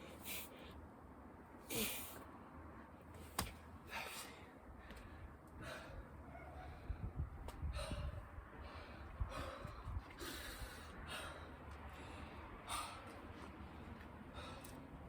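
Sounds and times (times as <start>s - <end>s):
person breathing hard: 3.8s - 15.0s.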